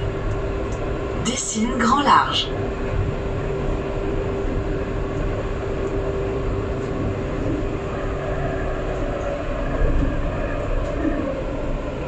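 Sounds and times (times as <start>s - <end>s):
steady hum: 0.0s - 9.2s
tram wheels rumbling: 0.0s - 12.0s.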